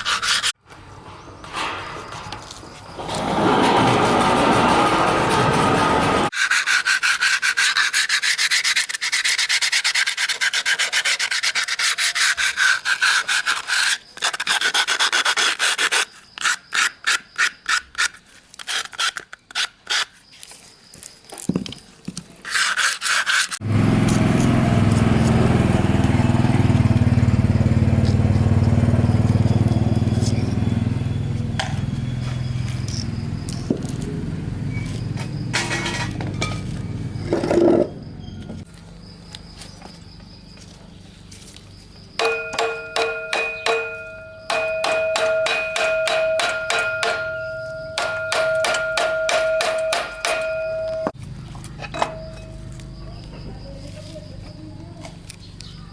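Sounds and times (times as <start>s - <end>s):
rubbing strokes on metal: 0.0s - 0.6s, 6.2s - 18.1s.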